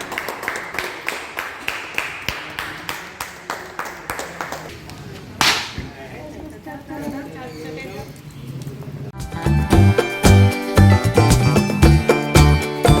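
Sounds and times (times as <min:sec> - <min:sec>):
sharp clicks or claps: 0:05.4 - 0:05.9.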